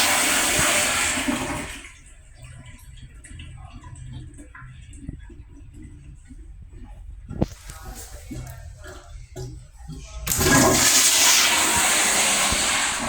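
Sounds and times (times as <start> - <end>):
toilet flushing: 0.0 - 13.0.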